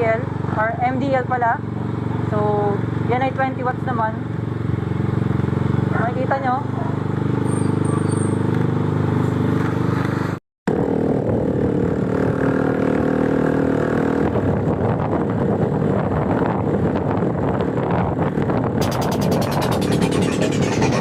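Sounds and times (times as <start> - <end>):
wind and road rush: 0.0 - 5.9, 8.5 - 21.0
scooter engine running: 18.8 - 21.0.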